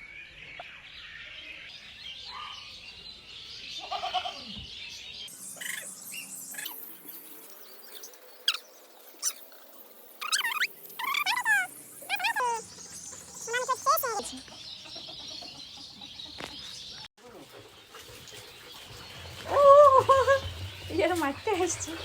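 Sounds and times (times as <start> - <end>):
background bird chirping: 0.0 - 22.0
parakeet chirping: 5.6 - 6.9, 7.9 - 14.4
shrill parakeet calls: 10.2 - 12.7.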